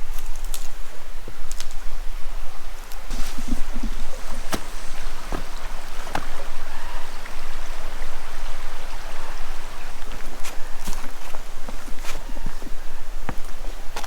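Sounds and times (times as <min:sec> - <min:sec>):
creek rushing: 0:03.1 - 0:14.0.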